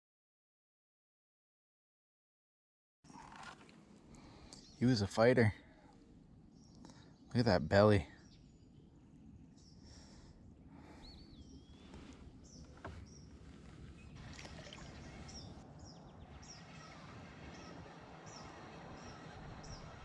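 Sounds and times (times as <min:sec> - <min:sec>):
outdoor background noise: 0:03.0 - 0:20.0
songbird high falling chirp: 0:10.8 - 0:20.0
whistled bird call: 0:14.0 - 0:20.0.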